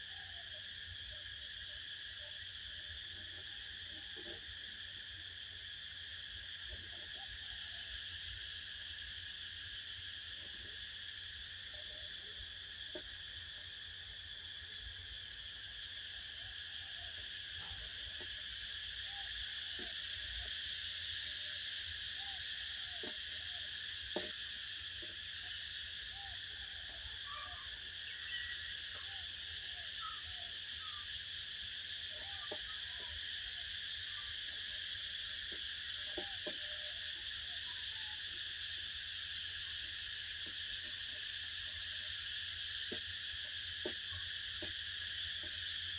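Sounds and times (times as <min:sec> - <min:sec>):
insect chorus trilling: 0:00.0 - 0:45.9
faint animal calls: 0:26.0 - 0:31.1, 0:31.9 - 0:38.5.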